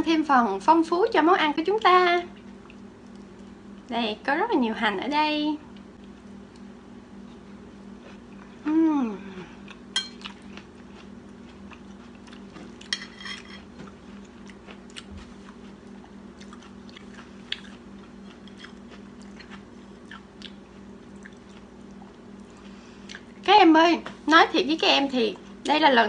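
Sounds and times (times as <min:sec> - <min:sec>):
steady low hum: 0:00.0 - 0:26.0
person chewing: 0:09.6 - 0:12.9, 0:13.6 - 0:23.5.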